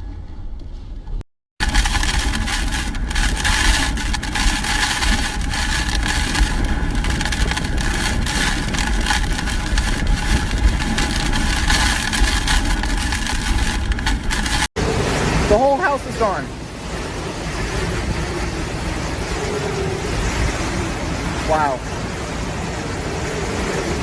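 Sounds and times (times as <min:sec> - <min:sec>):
strong wind buffeting microphone: 0:01.6 - 0:15.6, 0:16.5 - 0:24.0
steady wind whistle: 0:16.7 - 0:24.0.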